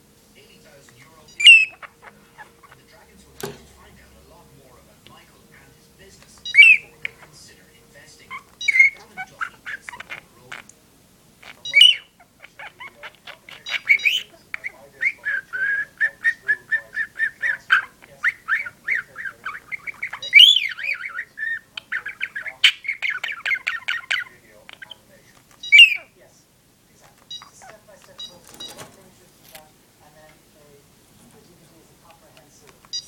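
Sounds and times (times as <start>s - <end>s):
budgerigar chattering: 0.8s - 10.7s, 11.4s - 26.2s, 27.0s - 29.0s, 32.0s - 33.0s
budgerigar squawks: 1.3s - 3.0s, 6.4s - 7.4s, 8.2s - 10.7s, 11.4s - 26.2s.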